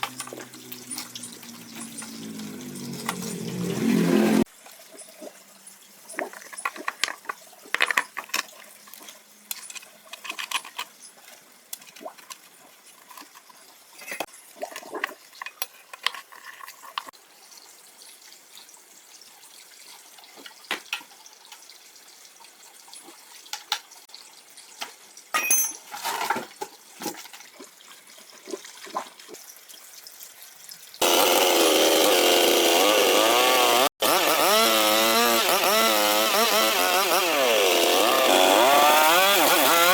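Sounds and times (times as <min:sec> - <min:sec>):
chainsaw engine running: 0:00.0 - 0:04.5, 0:31.0 - 0:39.9
tools and parts clicking: 0:06.2 - 0:08.6, 0:09.5 - 0:12.4.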